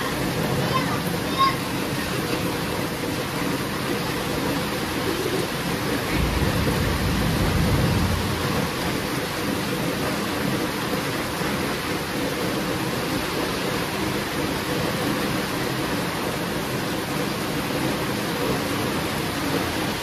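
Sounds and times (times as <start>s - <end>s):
heavy rain falling: 0.0s - 20.0s
thunder rumbling: 5.1s - 10.6s.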